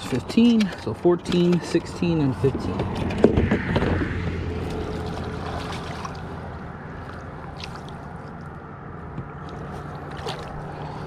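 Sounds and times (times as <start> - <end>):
water splashing against a kayak: 4.5 - 8.5, 9.3 - 11.0.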